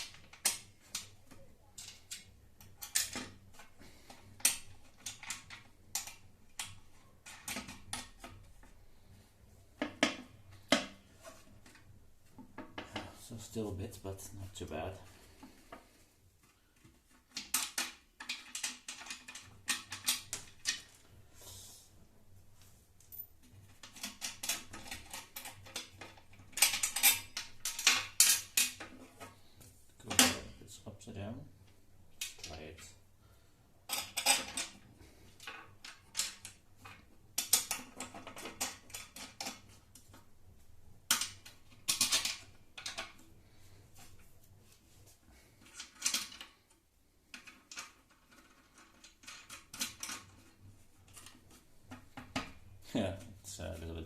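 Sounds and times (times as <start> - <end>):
clicks and rattles of parts handled: 0.0 - 9.1, 15.4 - 21.1, 23.0 - 30.6, 32.2 - 33.0, 33.9 - 40.3, 41.0 - 44.3, 45.3 - 53.4.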